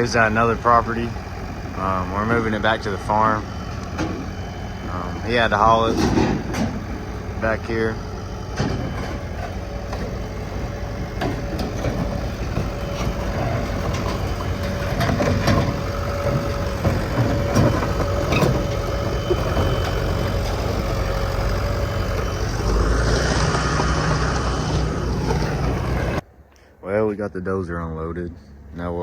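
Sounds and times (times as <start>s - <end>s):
bulldozer diesel engine running: 0.0s - 29.0s
metallic knocks and clanks: 5.8s - 6.9s, 11.1s - 20.9s.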